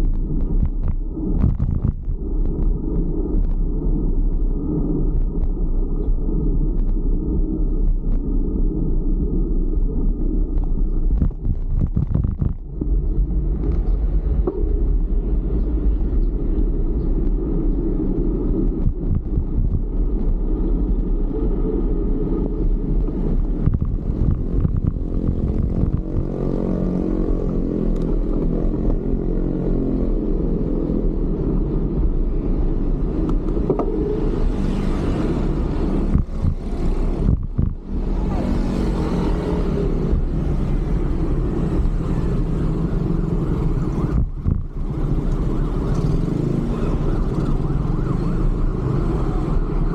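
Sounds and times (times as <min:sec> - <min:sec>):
wind rumbling on microphone: 0:00.0 - 0:49.9
vehicle engine passing: 0:33.8 - 0:42.6.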